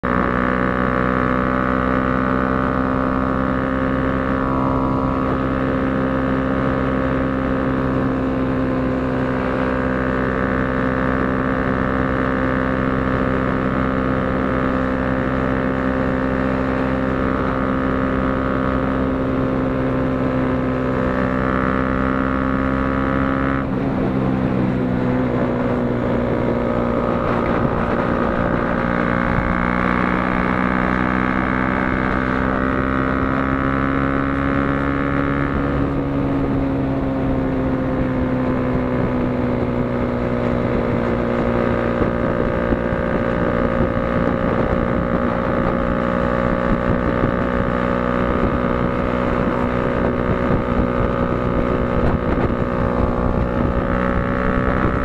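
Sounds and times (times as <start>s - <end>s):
motorcycle engine at high revs: 0.0s - 55.0s
wind rush: 23.6s - 32.0s, 35.2s - 55.0s.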